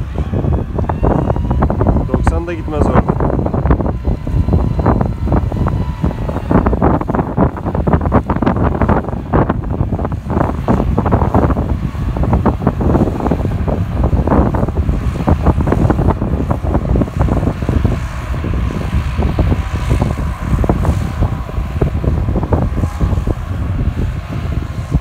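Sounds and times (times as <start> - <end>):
tractor diesel engine running: 0.0 - 25.0
wind buffeting microphone: 0.0 - 25.0
thin steady whistle: 0.2 - 6.8.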